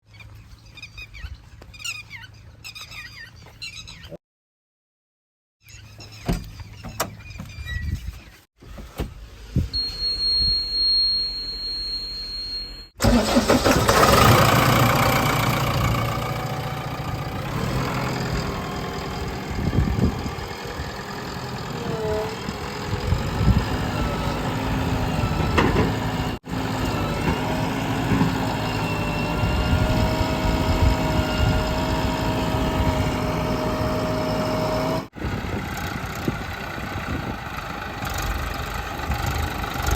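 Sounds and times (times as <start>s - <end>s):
backhoe diesel engine working: 9.2s - 39.9s.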